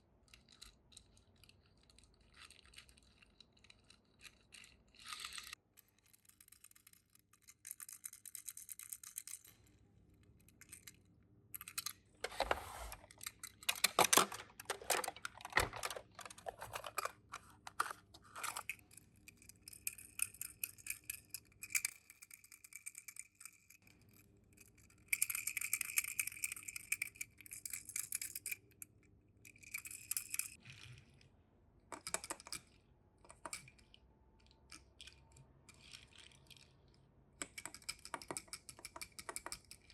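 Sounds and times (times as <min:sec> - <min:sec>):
toy cars clicking and clattering: 0:00.2 - 0:31.3, 0:31.9 - 0:39.9
packaging rustling: 0:12.2 - 0:18.7.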